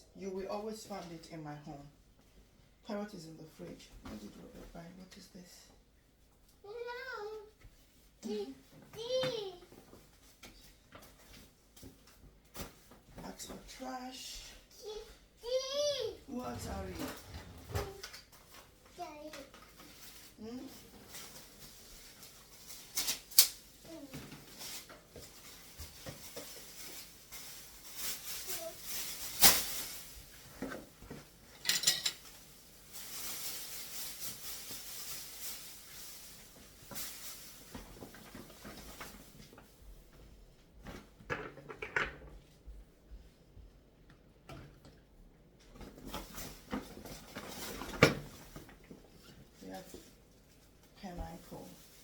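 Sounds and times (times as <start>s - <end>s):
soft rustling: 3.6s - 41.2s, 45.7s - 52.0s
dishes and utensils clattering: 31.1s - 32.3s.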